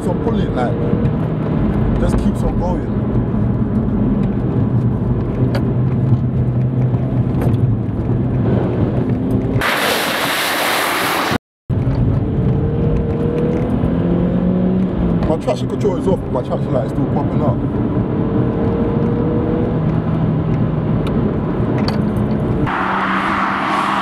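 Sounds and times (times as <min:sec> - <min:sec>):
water spray from puddle: 0:09.6 - 0:11.4.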